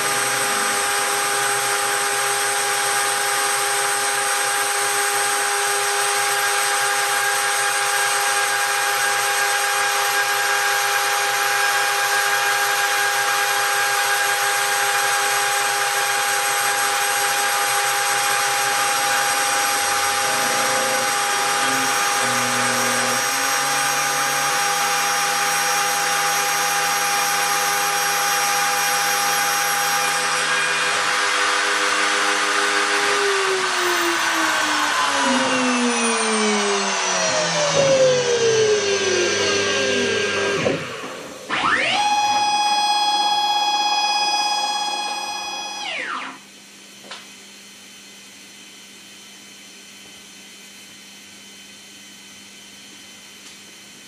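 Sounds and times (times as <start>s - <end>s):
router spindle whine: 0.0s - 46.5s
stepper motors moving: 19.1s - 25.0s.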